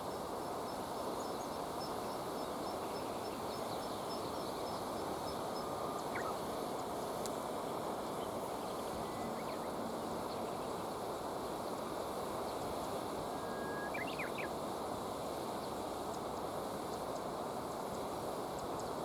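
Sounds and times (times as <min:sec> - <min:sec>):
river water running: 0:00.1 - 0:19.0
faint bird chirps: 0:03.6 - 0:06.4, 0:13.3 - 0:14.5.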